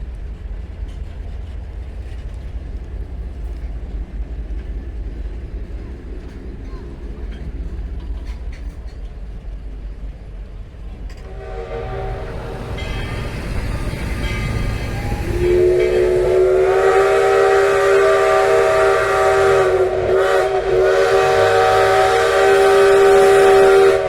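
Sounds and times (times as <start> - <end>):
low rumble of train: 0.0 - 24.0
steam locomotive chime whistle: 11.2 - 24.0.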